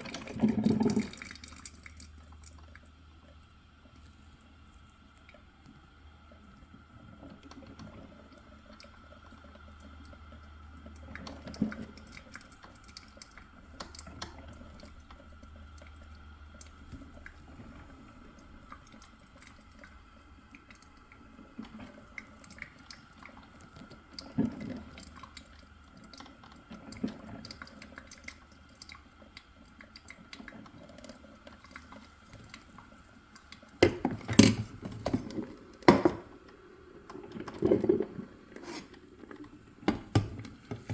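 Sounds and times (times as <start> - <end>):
water gurgling and dripping: 0.0 - 40.9
coffee maker hum: 30.8 - 40.9.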